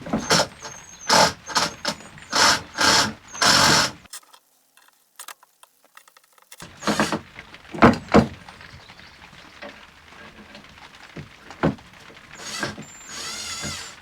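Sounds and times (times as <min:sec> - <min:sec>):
wooden knocks and thumps: 0:00.0 - 0:04.0, 0:06.2 - 0:08.8, 0:09.6 - 0:14.0.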